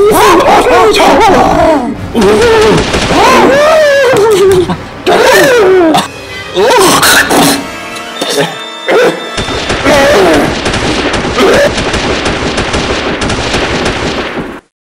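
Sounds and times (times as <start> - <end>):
loud dense crackling: 2.0 - 4.7, 9.3 - 14.7.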